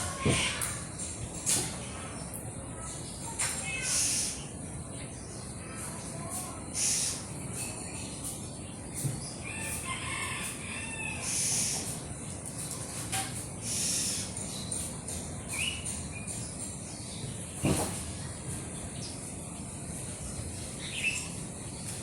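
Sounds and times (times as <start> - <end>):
high rustling hisses: 3.7 - 4.6, 5.8 - 8.4, 11.2 - 12.1, 13.6 - 15.0
short bird calls: 6.6 - 7.4, 11.2 - 12.0, 13.6 - 14.4.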